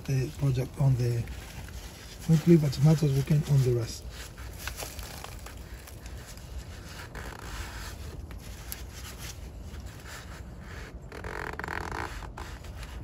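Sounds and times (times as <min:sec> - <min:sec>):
brush scraping on metal: 0:00.1 - 0:04.9.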